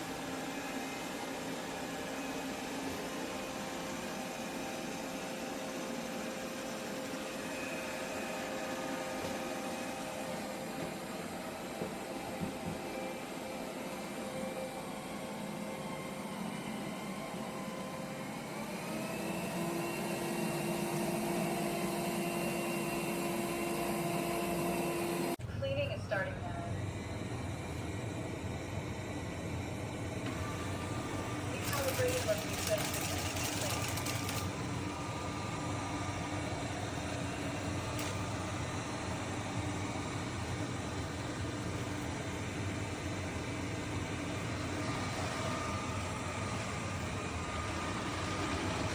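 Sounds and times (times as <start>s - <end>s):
motor whine: 0.0s - 25.4s, 26.1s - 48.9s
robot vacuum whirring: 30.3s - 35.6s.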